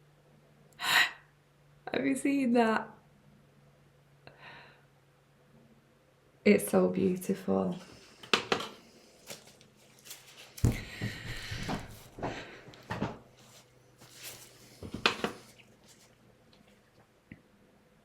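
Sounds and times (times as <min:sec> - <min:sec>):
light knocks and clicks on desk: 0:08.2 - 0:08.8, 0:14.8 - 0:15.4
rustling: 0:08.7 - 0:10.9, 0:13.4 - 0:16.9.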